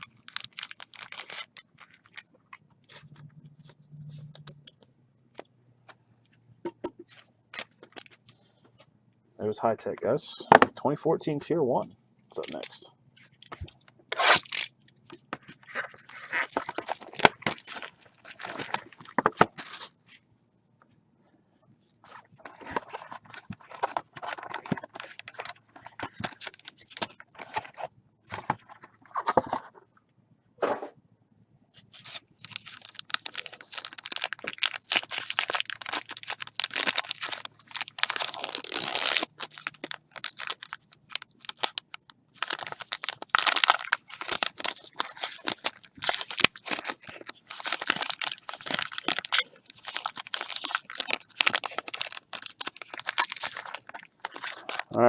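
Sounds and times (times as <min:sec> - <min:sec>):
packaging torn and crinkled: 0:00.0 - 0:04.5, 0:12.4 - 0:12.8, 0:13.4 - 0:14.7, 0:15.5 - 0:20.0, 0:22.4 - 0:27.8, 0:31.8 - 0:54.9.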